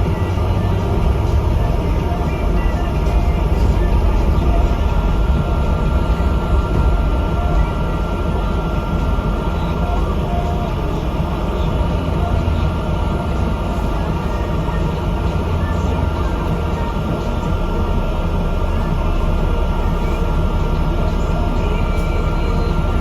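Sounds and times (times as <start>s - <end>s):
bus engine and road rumble: 0.0s - 23.0s
faint steady whine: 0.0s - 23.0s.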